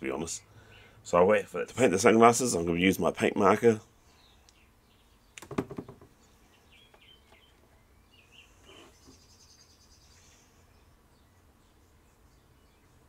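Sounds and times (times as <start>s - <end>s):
faint bird chirps: 4.0s - 13.0s.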